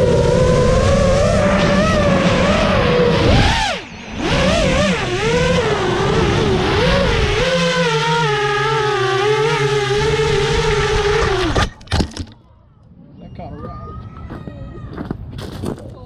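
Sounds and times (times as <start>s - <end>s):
drone motors and propellers whining: 0.0s - 12.0s.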